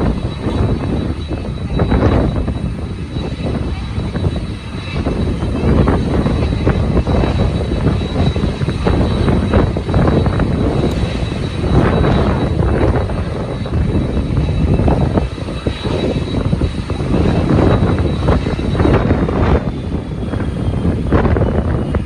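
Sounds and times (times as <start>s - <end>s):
jet engines whining: 0.0s - 22.0s
wind gusting on microphone: 0.0s - 22.0s.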